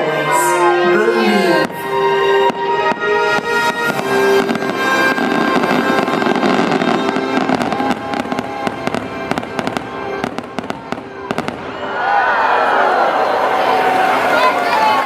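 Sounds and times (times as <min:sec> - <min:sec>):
fireworks show music: 0:00.0 - 0:15.0
fireworks popping and crackling: 0:01.6 - 0:11.9.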